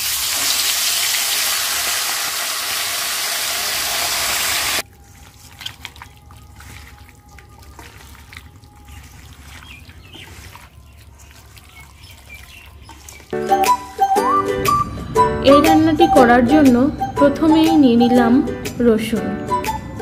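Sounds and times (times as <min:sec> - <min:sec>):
chicken sizzling in hot oil: 0:00.0 - 0:04.9
hand mixing chicken in steel bowl: 0:04.7 - 0:14.2.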